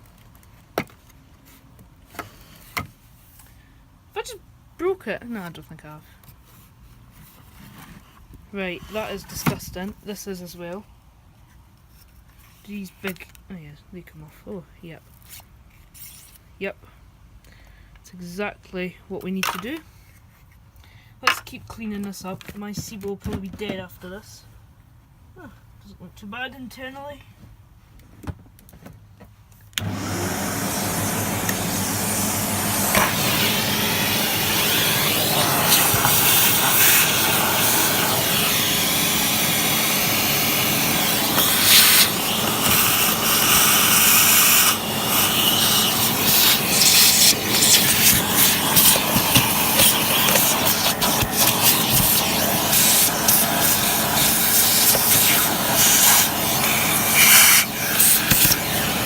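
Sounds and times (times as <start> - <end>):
upright vacuum cleaner running: 29.8 - 59.0.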